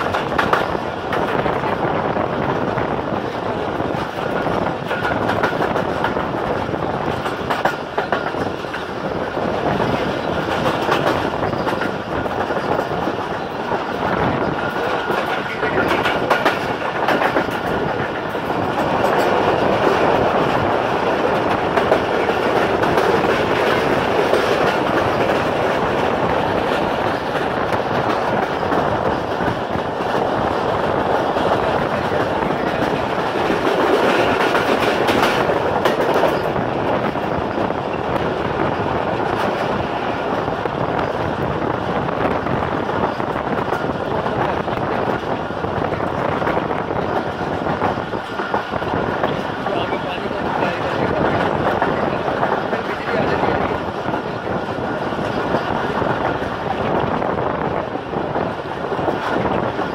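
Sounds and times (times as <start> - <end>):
wheels clicking over rail joints: 0.0 - 1.9, 2.5 - 59.9
train wheels rumbling on track: 0.0 - 59.9.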